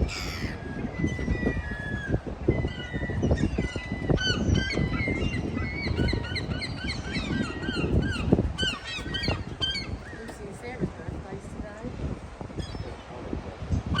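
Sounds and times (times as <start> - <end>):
flock of birds calling: 0.0 - 10.8.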